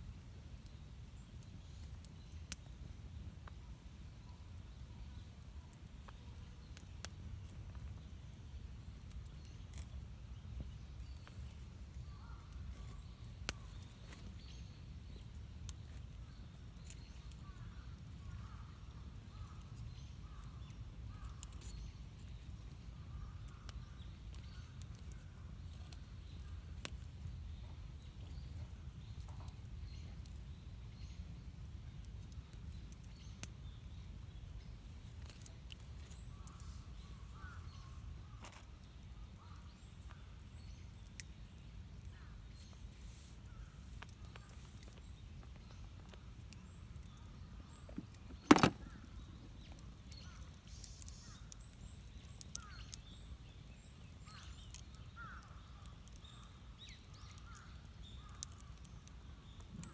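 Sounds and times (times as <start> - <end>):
small sharp clicks and pops: 4.5 - 10.4, 13.2 - 17.7, 23.4 - 27.4, 29.1 - 37.5, 38.4 - 59.9.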